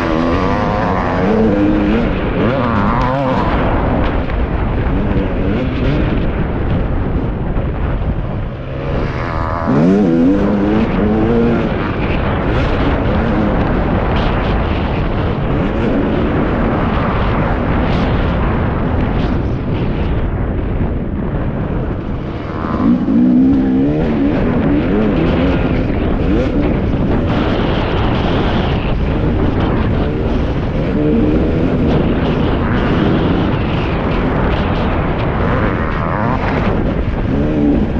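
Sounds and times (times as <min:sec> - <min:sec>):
motocross engine revving: 0:00.0 - 0:06.9, 0:08.4 - 0:14.6, 0:22.2 - 0:37.9
wind rush: 0:00.0 - 0:37.9.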